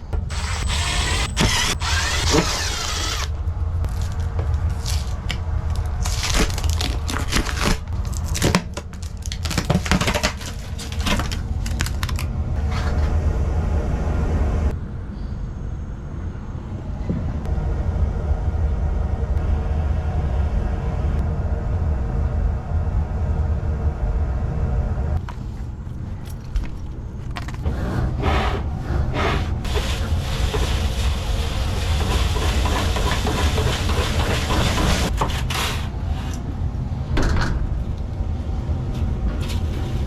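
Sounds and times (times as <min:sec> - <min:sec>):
steady low rumble: 0:00.0 - 0:09.7, 0:10.5 - 0:33.4, 0:36.0 - 0:40.0
scratchy rustling and scraping: 0:03.9 - 0:11.9.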